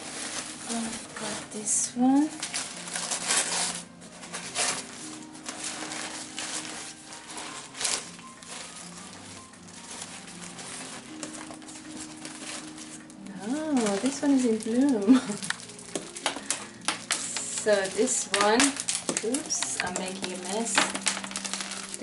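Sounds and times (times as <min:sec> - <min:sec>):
soft background music: 0:00.0 - 0:22.0
wrapping crinkling and rustling: 0:00.0 - 0:22.0.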